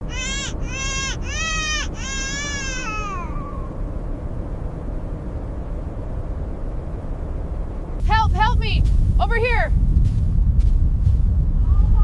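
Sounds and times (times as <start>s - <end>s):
snow leopard cub crying: 0.0s - 3.8s
low blizzard wind: 0.0s - 12.0s.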